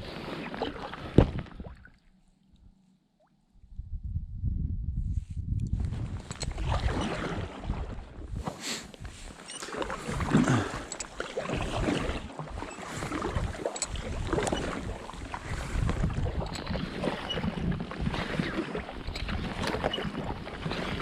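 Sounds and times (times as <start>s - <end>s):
paddle splashing through water: 0.0s - 2.0s, 6.4s - 21.0s
wind rumbling on microphone: 3.6s - 21.0s.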